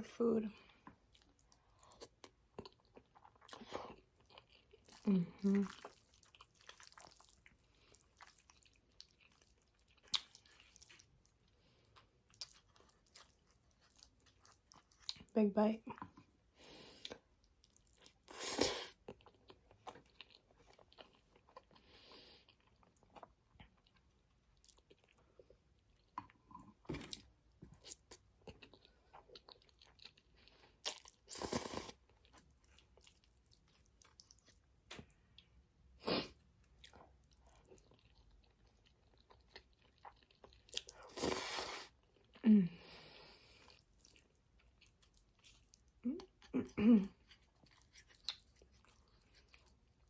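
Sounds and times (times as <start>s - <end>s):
chewing with wet mouth clicks: 0.7s - 15.3s, 17.0s - 18.3s, 22.5s - 35.5s, 36.6s - 41.0s, 43.6s - 46.5s, 47.2s - 50.0s.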